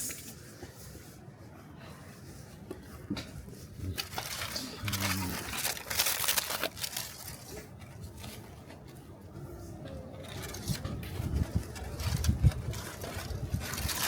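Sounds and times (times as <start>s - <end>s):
foil and paper crinkling and tearing: 3.9s - 8.4s, 10.2s - 14.0s.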